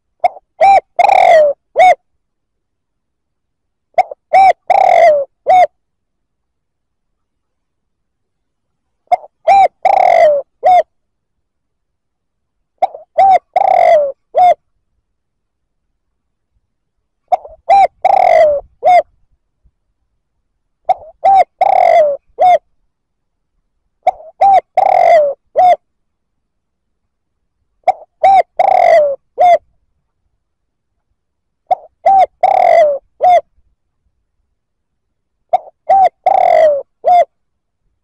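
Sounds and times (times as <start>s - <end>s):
dove cooing: 0.0s - 2.0s, 4.0s - 5.8s, 9.0s - 10.9s, 12.8s - 14.6s, 17.3s - 19.2s, 20.9s - 22.7s, 24.0s - 25.9s, 27.8s - 29.6s, 31.6s - 33.5s, 35.5s - 37.3s.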